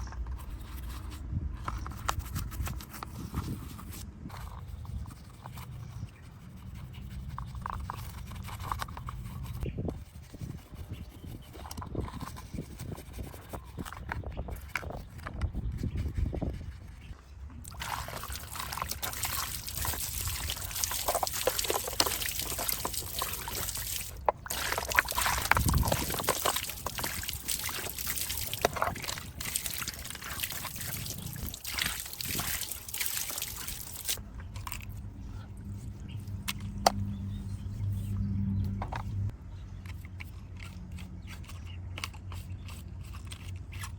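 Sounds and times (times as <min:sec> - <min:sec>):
water trickling and splashing: 0:17.6 - 0:34.2.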